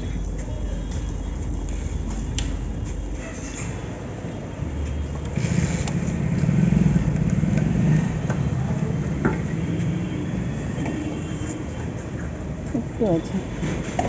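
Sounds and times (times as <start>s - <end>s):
motorcycle engine running: 5.3s - 10.2s.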